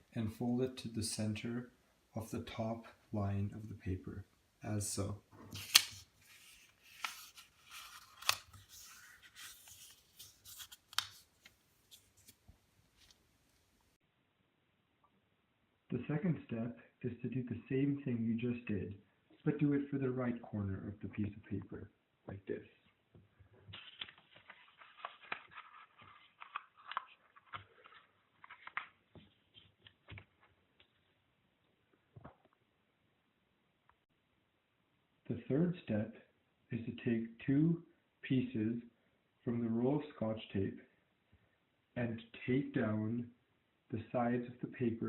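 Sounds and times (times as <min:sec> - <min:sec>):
paper folding rustle: 0:05.5 - 0:13.7, 0:23.6 - 0:31.2
sharp paper crackles: 0:05.6 - 0:12.4, 0:23.7 - 0:30.9.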